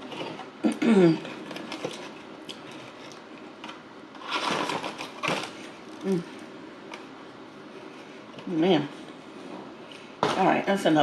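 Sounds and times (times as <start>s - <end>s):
person humming mm: 6.0s - 6.3s.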